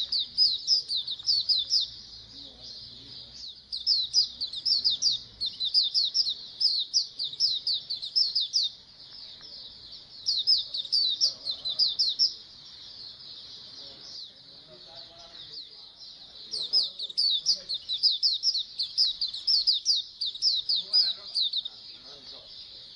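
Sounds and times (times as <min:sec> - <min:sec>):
birds twittering: 0:00.0 - 0:22.9.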